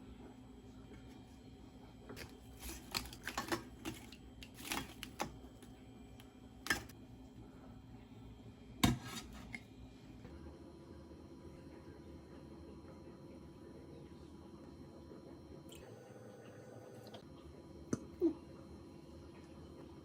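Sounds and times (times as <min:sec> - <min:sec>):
utensils and dishes clinking: 0:02.2 - 0:05.4, 0:06.7 - 0:06.9.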